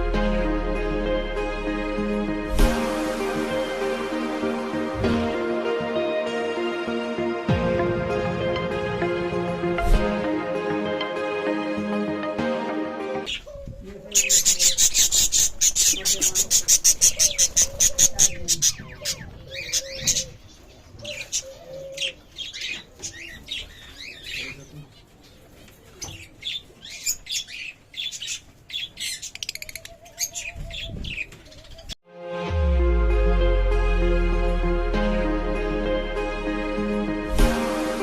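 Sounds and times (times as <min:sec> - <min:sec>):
background music: 0:00.0 - 0:13.4, 0:32.1 - 0:38.0
parrots chirping and squawking: 0:13.3 - 0:24.6, 0:26.2 - 0:31.9.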